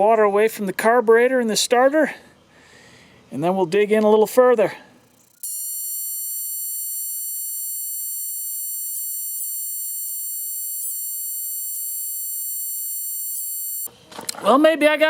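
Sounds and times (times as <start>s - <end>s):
high-pitched electronic buzzing: 5.1s - 13.9s.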